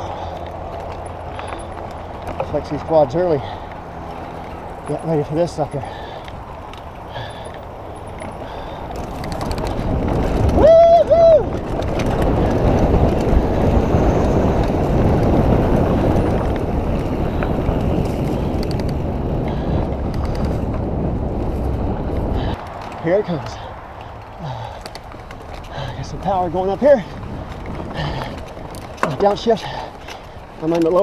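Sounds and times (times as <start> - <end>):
wind on microphone: 0.0 - 30.6
bike tyres rumbling on dirt trail: 0.0 - 31.0.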